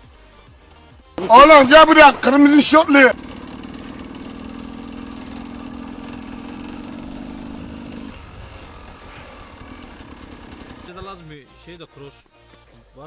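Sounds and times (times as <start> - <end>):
motorcycle engine idling: 1.2 - 11.2.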